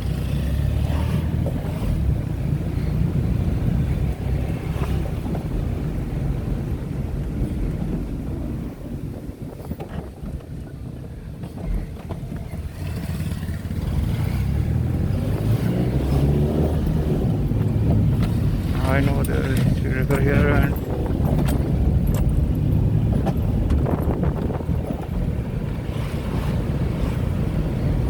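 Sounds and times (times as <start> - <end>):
car engine drone: 0.0 - 28.0
road and tyre noise: 0.0 - 28.0.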